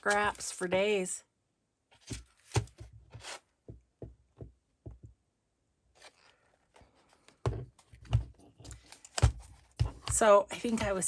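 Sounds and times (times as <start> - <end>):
paper rustling: 0.0 - 0.8, 1.9 - 3.5, 5.9 - 11.0.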